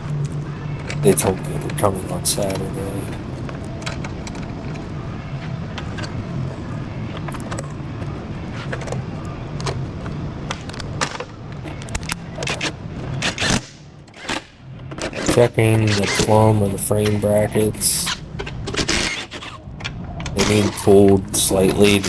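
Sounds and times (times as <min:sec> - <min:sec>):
low shop hum: 0:01.0 - 0:03.5, 0:15.4 - 0:18.2, 0:20.4 - 0:22.0.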